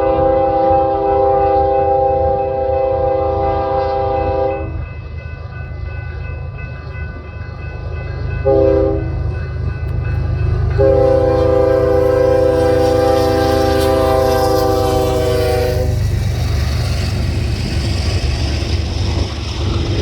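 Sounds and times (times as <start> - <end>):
locomotive air horn blasts: 0.0 - 4.8, 8.4 - 9.1, 10.8 - 16.0
train rumble: 0.0 - 20.0.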